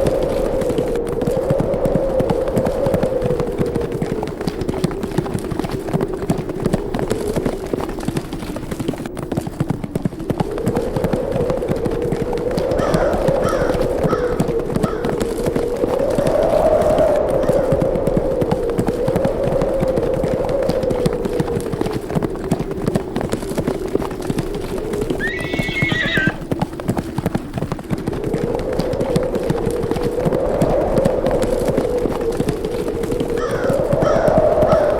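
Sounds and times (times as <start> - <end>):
horses galloping: 0.0 - 34.9
howling wind: 0.0 - 34.9
horse whinnying: 25.2 - 26.4.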